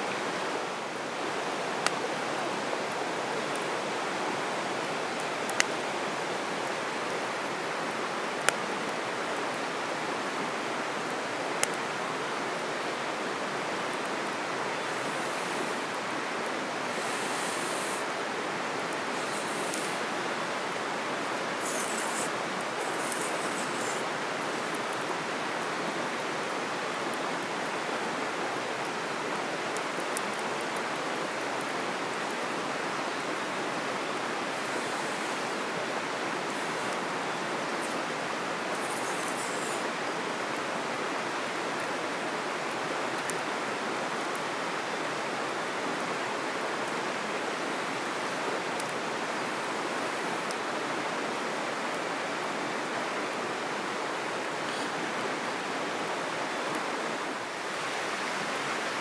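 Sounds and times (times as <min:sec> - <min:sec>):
flowing river rushing: 0:11.3 - 0:27.8, 0:31.8 - 0:41.8, 0:44.6 - 0:59.0
brief high hisses: 0:14.8 - 0:16.1, 0:16.8 - 0:18.3, 0:19.1 - 0:24.9, 0:34.5 - 0:35.8, 0:36.4 - 0:38.0, 0:38.8 - 0:40.0.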